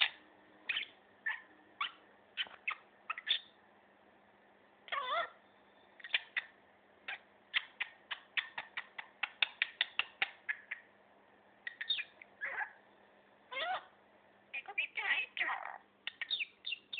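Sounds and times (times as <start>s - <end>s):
budgerigar chattering: 0.0s - 3.5s, 6.0s - 6.5s, 7.1s - 10.9s, 11.7s - 12.8s, 14.6s - 16.9s.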